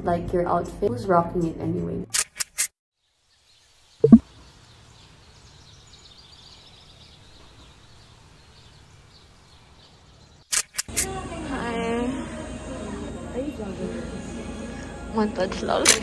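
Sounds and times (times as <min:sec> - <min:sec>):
faint small bird chirps: 0:03.0 - 0:10.2.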